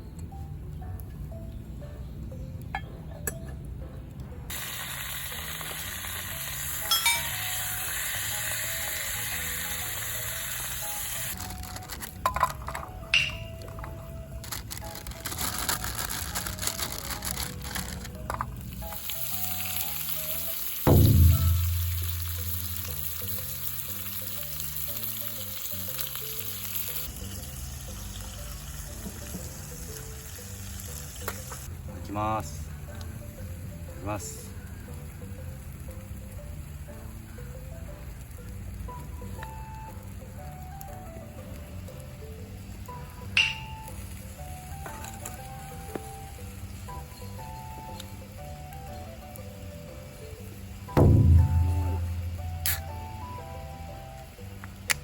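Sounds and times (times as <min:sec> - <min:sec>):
background music: 0:00.0 - 0:55.0
food sizzling in a skillet: 0:04.5 - 0:11.5, 0:18.6 - 0:31.7
metal clinks: 0:06.9 - 0:07.3
background music with bass line: 0:18.1 - 0:25.5, 0:47.7 - 0:55.0.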